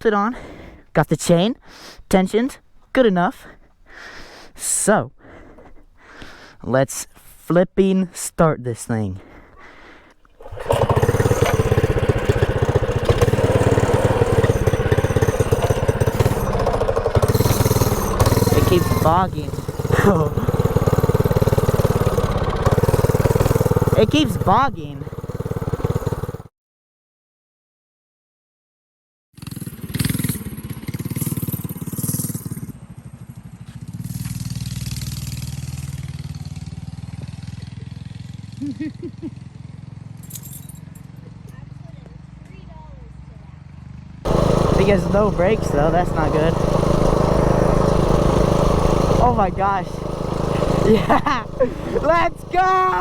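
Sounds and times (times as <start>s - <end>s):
small gas engine bogging: 5.2s - 6.6s, 9.2s - 26.5s, 44.3s - 53.0s.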